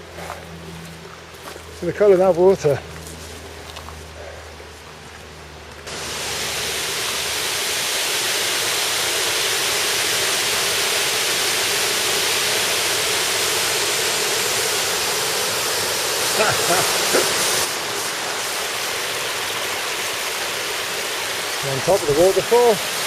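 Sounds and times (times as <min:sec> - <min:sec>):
outdoor ambience: 0:00.0 - 0:23.0
waterfall rushing: 0:05.9 - 0:23.0.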